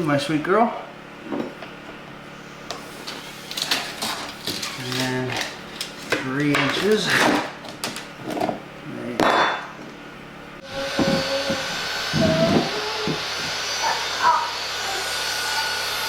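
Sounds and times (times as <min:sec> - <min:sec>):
power tool motor running: 0:10.6 - 0:16.0.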